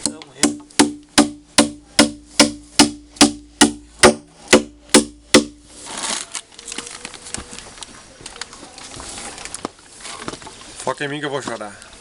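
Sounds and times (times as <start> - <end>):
sharp ringing knocks: 0.0 - 5.6
brief rustle: 5.8 - 10.9.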